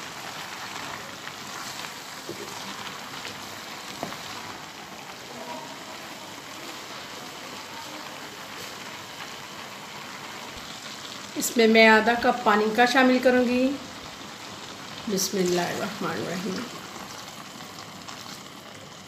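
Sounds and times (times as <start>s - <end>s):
vegetables sizzling in a pan: 0.0s - 19.0s.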